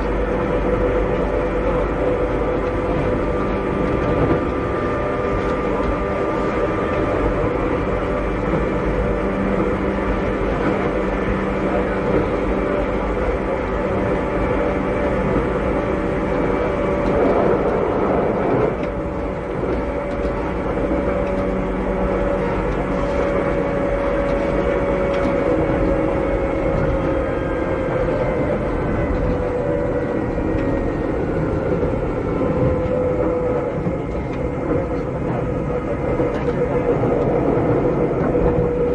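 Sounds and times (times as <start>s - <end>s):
electric train motor whine: 0.0s - 38.9s
train wheels rumbling: 0.0s - 38.9s.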